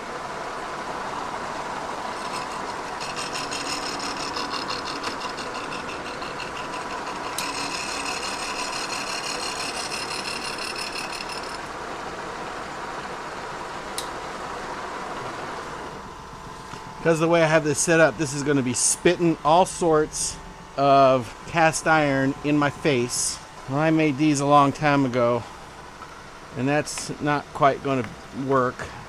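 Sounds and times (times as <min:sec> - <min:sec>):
milling machine running: 0:00.0 - 0:29.0
high scratchy ringing of cutter: 0:00.9 - 0:11.8.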